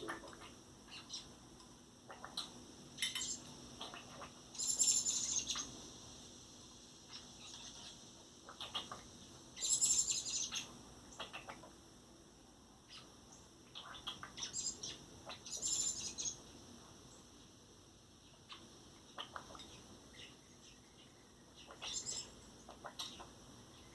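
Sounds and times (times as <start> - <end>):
young bird chirping: 0.0 - 1.3, 2.1 - 5.8, 7.1 - 11.7, 12.9 - 16.4, 18.3 - 23.9.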